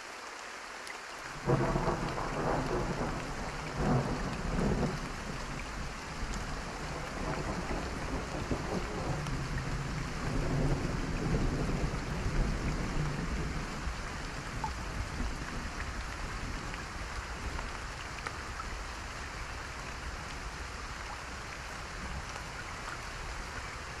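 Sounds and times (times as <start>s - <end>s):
steady rain falling: 0.0s - 24.0s
low rumble of thunder: 1.4s - 20.0s.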